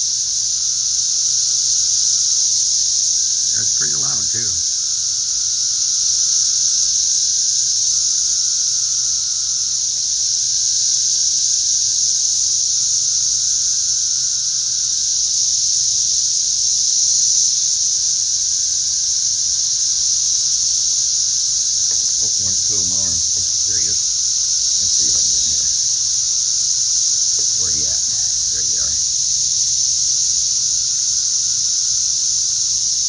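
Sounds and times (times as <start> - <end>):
cicadas droning: 0.0 - 33.0.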